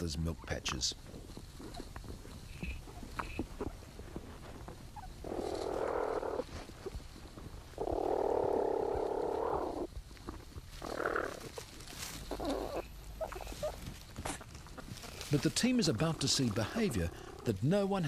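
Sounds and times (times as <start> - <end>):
platypuses making buzzy calls: 5.0 - 6.5, 7.8 - 11.6, 12.3 - 17.9.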